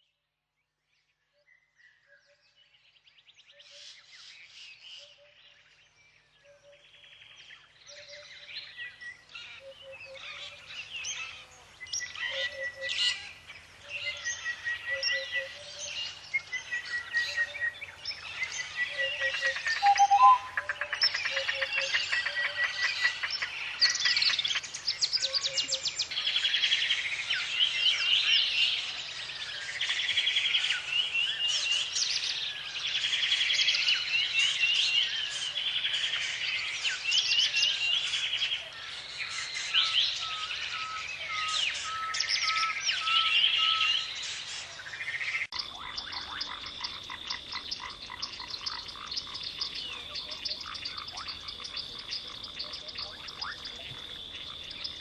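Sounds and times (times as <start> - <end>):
animals calling in pulsed trills: 18.6 - 23.3.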